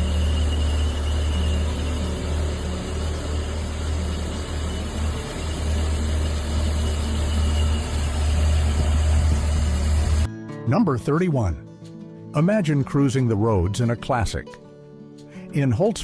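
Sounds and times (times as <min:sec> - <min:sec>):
car engine idling: 0:00.0 - 0:10.3.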